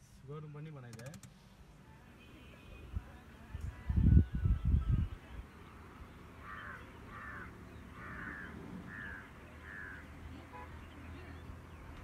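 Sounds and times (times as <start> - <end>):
bird calling: 6.4 - 10.1.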